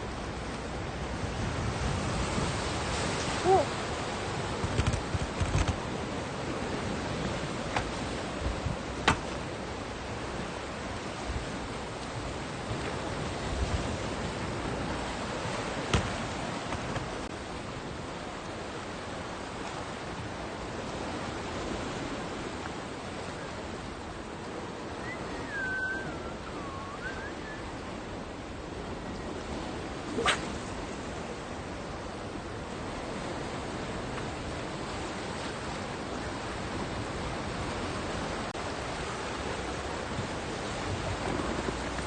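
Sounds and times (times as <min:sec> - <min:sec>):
sea surf on a beach: 0:00.0 - 0:42.0
short wavering high call: 0:25.0 - 0:27.8.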